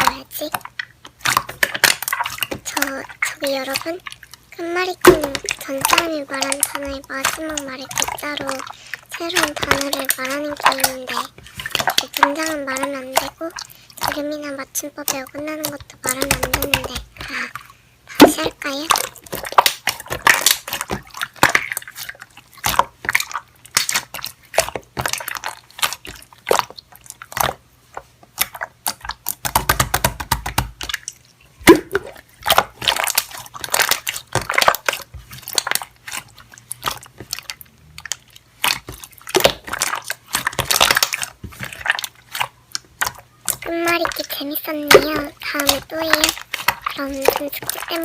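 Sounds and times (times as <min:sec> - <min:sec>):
slime squishing wet pops: 0:00.0 - 0:48.0.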